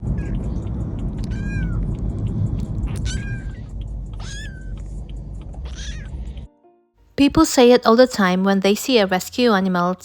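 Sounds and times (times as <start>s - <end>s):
steady low rumble: 0.0s - 6.6s
cat meowing: 1.2s - 1.8s, 2.9s - 4.8s, 5.6s - 6.2s.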